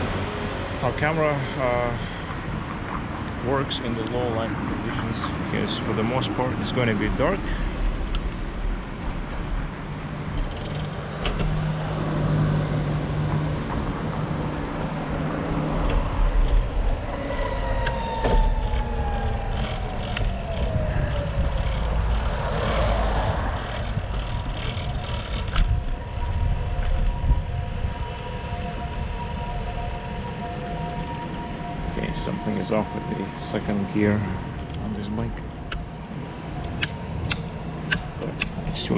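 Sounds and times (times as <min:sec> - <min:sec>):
wind and tyre rumble: 0:00.0 - 0:38.9
bicycle clicks and rattles: 0:08.0 - 0:08.6, 0:10.3 - 0:11.3, 0:18.7 - 0:26.0.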